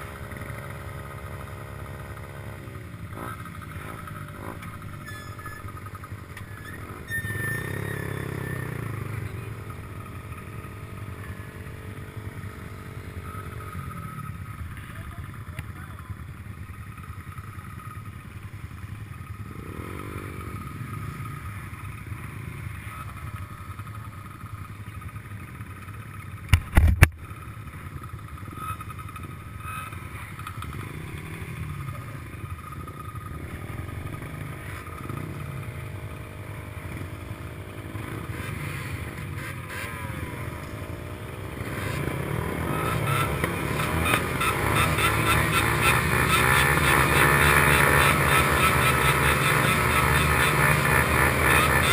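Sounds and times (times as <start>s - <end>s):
racing motorcycle engines revving: 0.0s - 51.9s.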